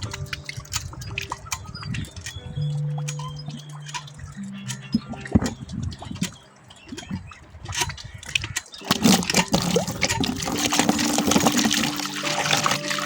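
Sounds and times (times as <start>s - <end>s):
held music tones: 0.0s - 13.0s
water gurgling down a whirlpool: 8.8s - 13.0s.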